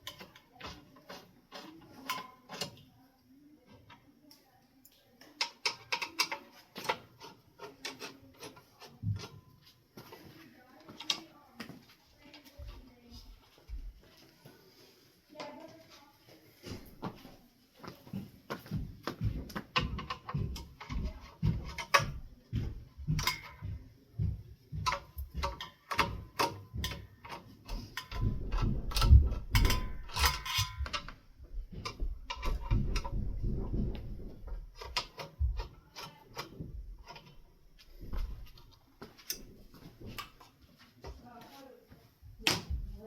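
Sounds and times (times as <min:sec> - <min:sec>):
metal parts clicking and tapping: 0:00.0 - 0:02.9, 0:03.6 - 0:09.4, 0:19.2 - 0:41.2
thuds and rustling: 0:27.8 - 0:35.7, 0:42.3 - 0:43.0.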